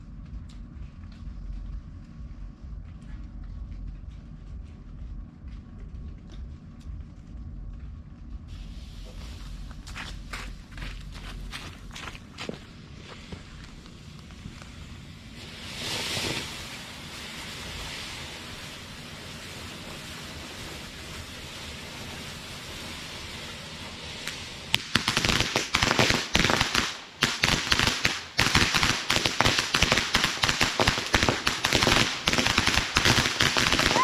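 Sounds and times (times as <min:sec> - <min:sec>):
firework crackling: 0:08.5 - 0:34.0
firework fountain hissing: 0:08.5 - 0:34.0.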